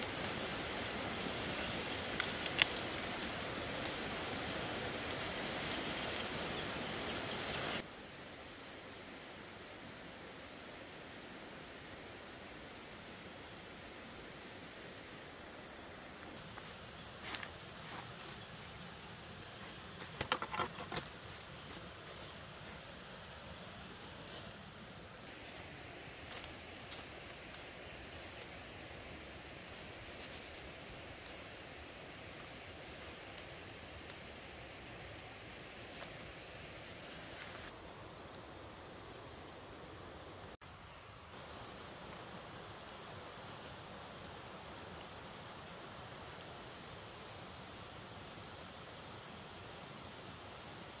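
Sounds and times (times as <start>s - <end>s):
insects trilling: 10.4s - 51.0s.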